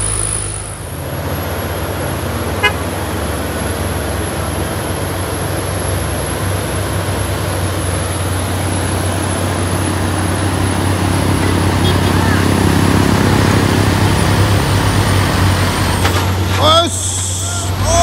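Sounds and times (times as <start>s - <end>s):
vehicle engine running: 0.0s - 18.0s
horn toot: 2.6s - 3.0s, 11.7s - 12.6s.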